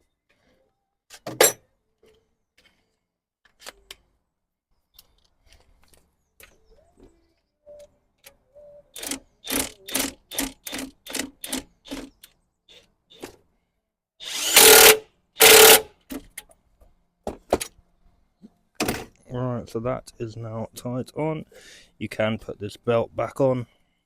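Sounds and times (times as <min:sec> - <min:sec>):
short ratchet strokes: 0:14.2 - 0:15.8
power tool bursts: 0:14.2 - 0:15.9.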